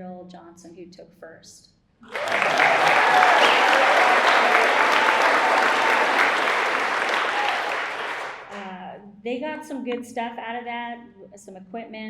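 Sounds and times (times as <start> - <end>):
audience applauding and cheering: 2.1 - 8.6.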